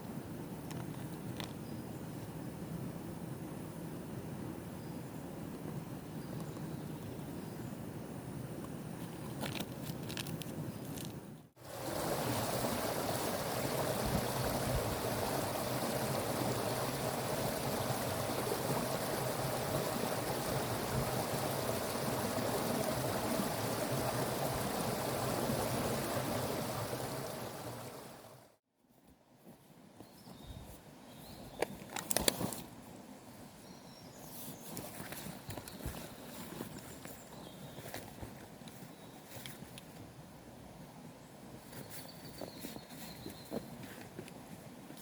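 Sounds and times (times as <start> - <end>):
stream water flowing: 11.6 - 28.6.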